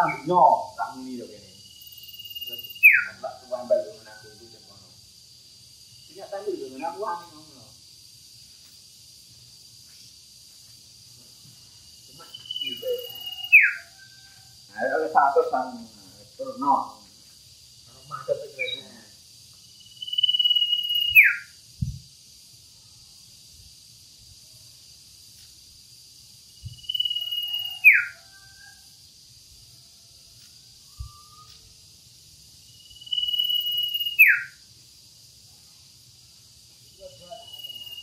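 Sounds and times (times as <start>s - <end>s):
bird whistling call: 12.6s - 13.8s, 20.9s - 21.5s, 33.2s - 34.5s.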